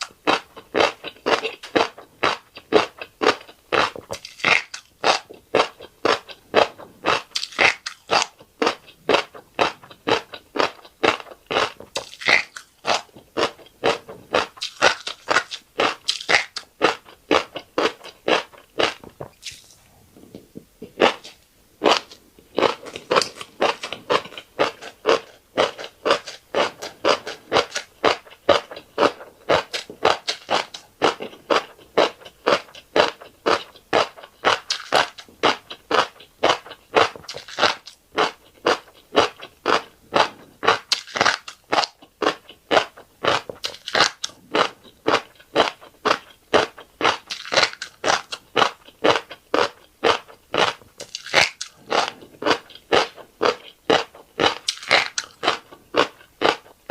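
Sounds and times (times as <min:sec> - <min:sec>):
wet crunchy chewing: 0:00.0 - 0:56.9.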